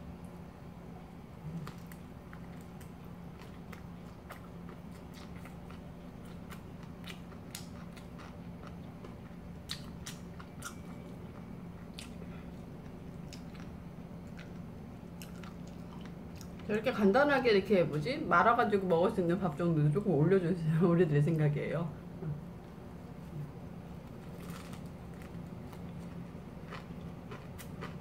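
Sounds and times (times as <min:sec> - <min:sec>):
steady low hum: 0:00.0 - 0:28.0
person chewing crunchy food: 0:01.4 - 0:16.7, 0:23.0 - 0:28.0.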